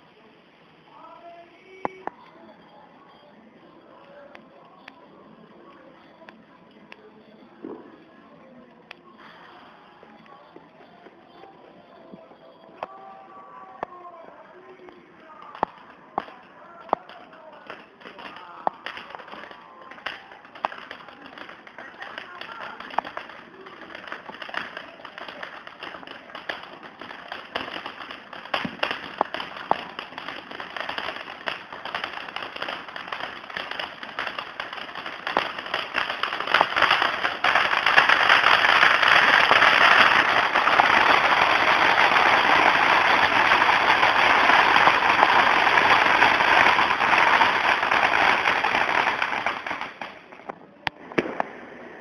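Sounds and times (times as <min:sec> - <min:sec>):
firework fountain hissing and crackling: 0:00.0 - 0:52.0
sharp pops and crackles: 0:14.8 - 0:51.6.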